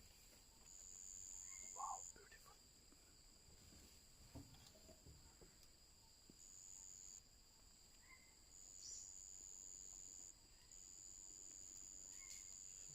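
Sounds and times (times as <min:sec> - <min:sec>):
faint bird chirps: 0:00.4 - 0:02.6, 0:07.9 - 0:12.9
high-pitched insect drone: 0:00.7 - 0:02.6, 0:08.5 - 0:12.9.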